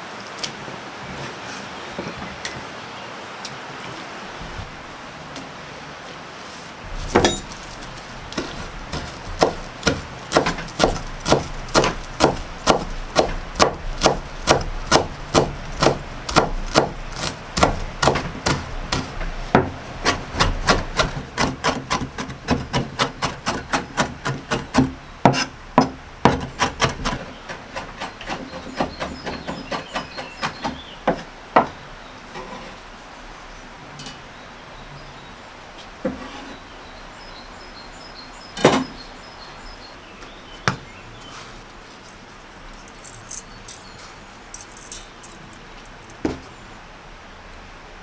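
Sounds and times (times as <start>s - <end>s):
knife chopping on wooden board: 6.9s - 27.2s.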